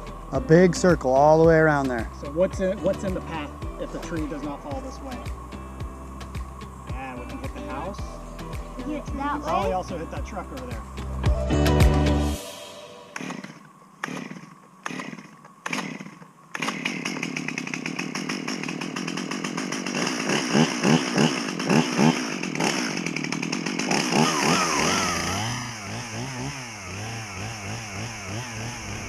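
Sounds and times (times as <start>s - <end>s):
chainsaw engine revving: 0.0s - 12.4s, 13.1s - 29.0s
chainsaw pull-start cord: 13.2s - 29.0s.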